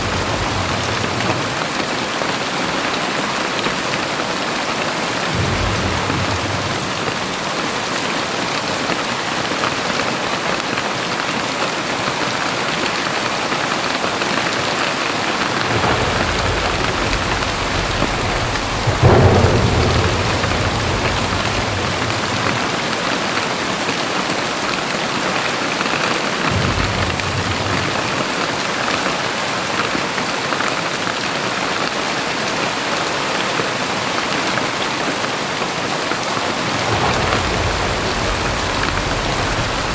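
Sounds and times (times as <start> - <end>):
thunder rumbling and cracking: 0.0 - 8.7, 13.8 - 29.7, 36.2 - 39.9
heavy rain pouring: 0.0 - 39.9.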